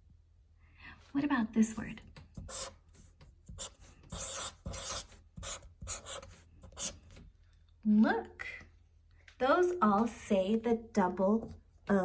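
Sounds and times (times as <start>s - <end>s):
scratching strokes writing on board: 2.4s - 7.2s.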